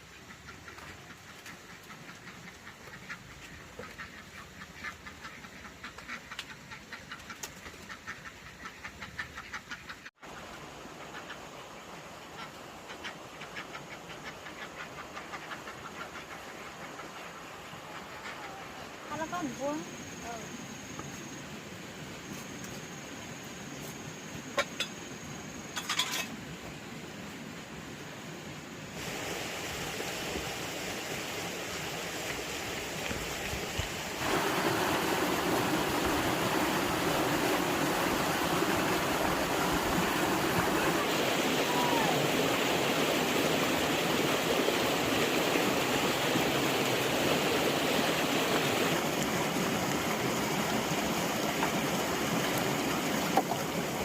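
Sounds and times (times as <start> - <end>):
running water rushing: 25.7 - 54.0.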